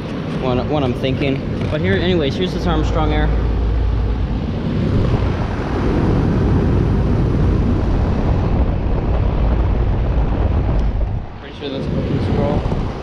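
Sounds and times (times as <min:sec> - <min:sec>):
air buffeting microphone: 0:00.0 - 0:13.0
air conditioner fan blowing: 0:00.0 - 0:13.0
compressor humming: 0:00.0 - 0:13.0.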